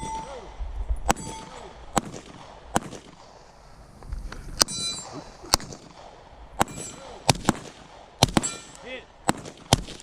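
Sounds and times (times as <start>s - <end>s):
steel targets ringing: 0.0s - 0.5s, 1.1s - 1.8s, 4.6s - 5.2s, 6.6s - 7.3s, 8.4s - 8.9s
gunshots: 0.0s - 3.4s, 4.6s - 10.0s.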